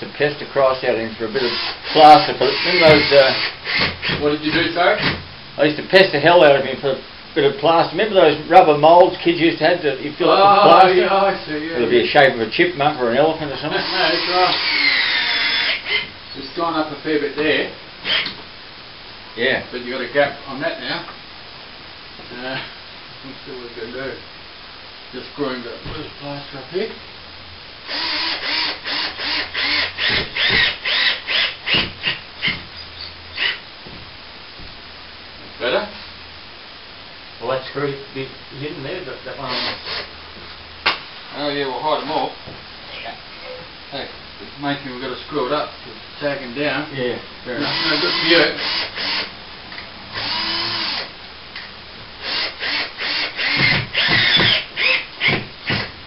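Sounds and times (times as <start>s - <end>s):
drill driving screw in bursts: 1.4s - 4.3s, 13.7s - 16.1s, 18.0s - 18.3s, 27.9s - 33.6s, 39.5s - 40.1s, 47.6s - 49.4s, 50.1s - 51.1s, 52.2s - 56.0s.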